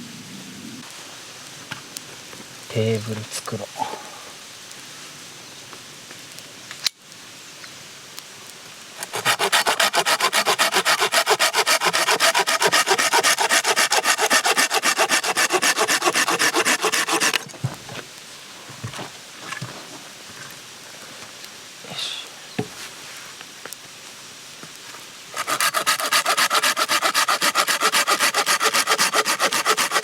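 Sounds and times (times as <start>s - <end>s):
hand saw cutting wood: 9.0s - 17.5s, 25.4s - 30.0s.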